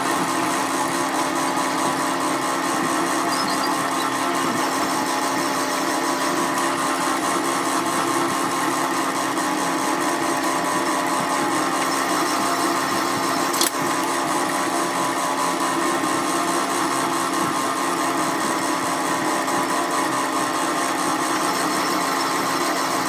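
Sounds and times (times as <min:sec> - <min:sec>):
workshop machine humming: 0:00.0 - 0:23.0
sharp click: 0:13.5 - 0:13.8.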